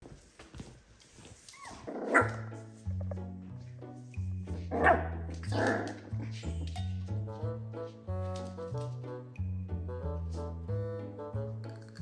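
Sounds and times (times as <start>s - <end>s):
puppies barking: 1.7s - 2.5s, 4.7s - 6.1s
background music with bass line: 2.2s - 12.0s.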